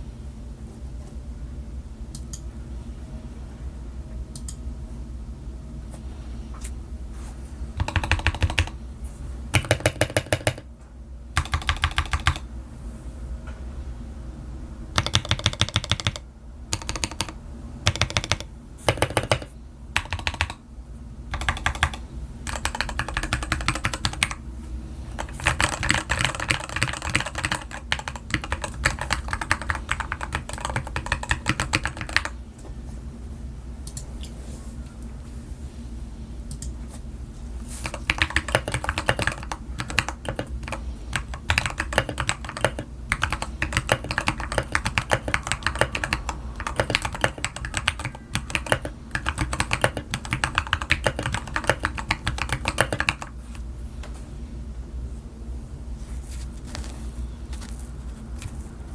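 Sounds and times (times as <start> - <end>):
mechanical keyboard typing: 7.8 - 8.8, 9.6 - 10.7, 11.4 - 12.5, 15.0 - 20.6, 21.3 - 24.4, 25.1 - 32.4, 37.7 - 53.4.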